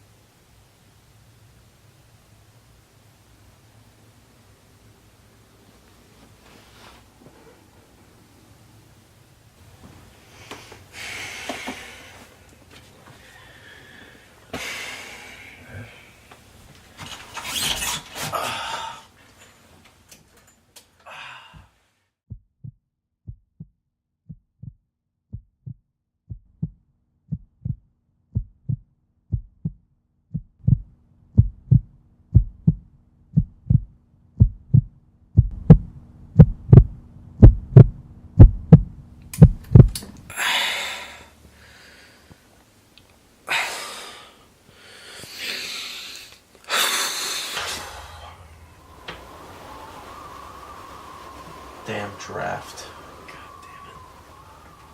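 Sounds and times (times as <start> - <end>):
heavy breathing: 10.2 - 16.4, 18.2 - 19.3, 21.0 - 21.8, 40.3 - 42.5, 43.4 - 54.9
heartbeat-like low thumps: 22.3 - 40.0
low steady drone: 47.0 - 54.9.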